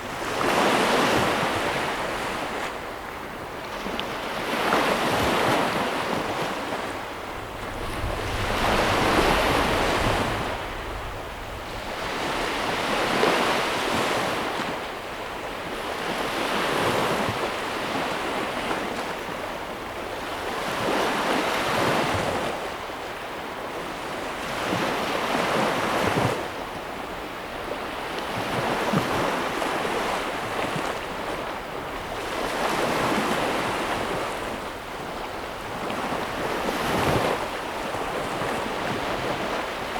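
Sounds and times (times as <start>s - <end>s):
ocean waves breaking: 3.5s - 19.1s.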